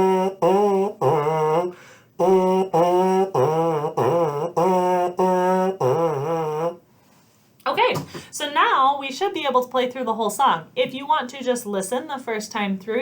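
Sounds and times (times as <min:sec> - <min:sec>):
buzzed brass mouthpiece tune: 0:00.0 - 0:06.8.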